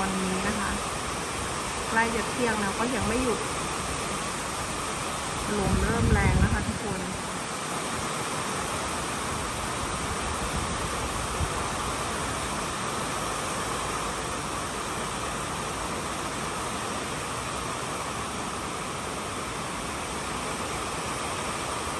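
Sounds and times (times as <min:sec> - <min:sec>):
heavy rain pouring: 0:00.0 - 0:21.9.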